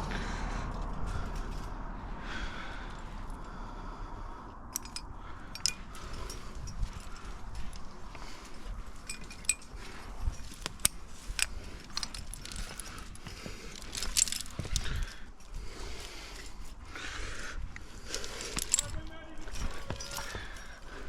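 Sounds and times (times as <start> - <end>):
low rumble on microphone: 0.0 - 9.1
climbing gear clinking: 0.7 - 1.8, 4.7 - 21.0.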